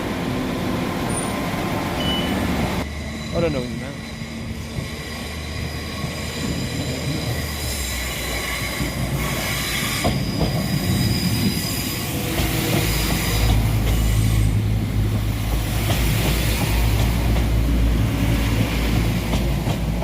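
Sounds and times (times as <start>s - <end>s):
train wheels squealing: 1.1s - 14.6s.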